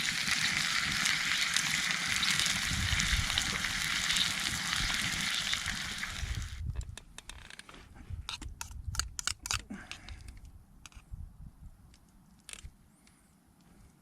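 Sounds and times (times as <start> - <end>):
food sizzling: 0.0 - 6.6.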